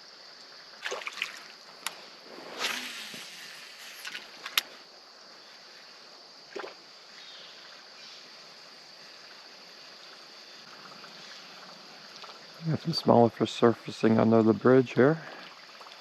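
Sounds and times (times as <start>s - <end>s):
creek water running: 0.7s - 4.9s, 9.9s - 16.0s
splash-like thump: 2.5s - 3.4s.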